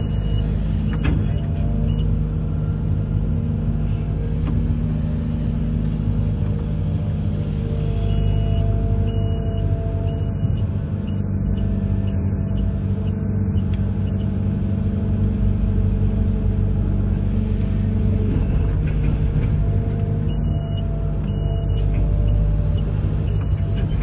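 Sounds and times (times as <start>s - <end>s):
diesel engine low rumble: 0.0s - 24.0s
faint high beeps: 8.0s - 14.3s.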